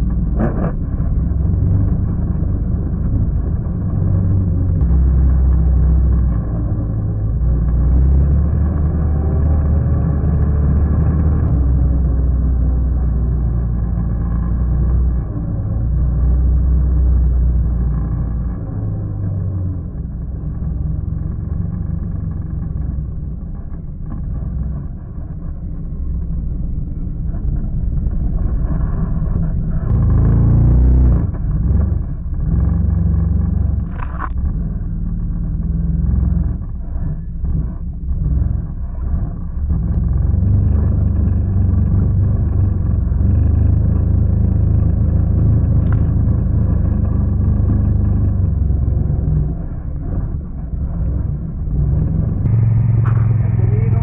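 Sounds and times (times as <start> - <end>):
quad bike engine revving: 39.8 - 54.0.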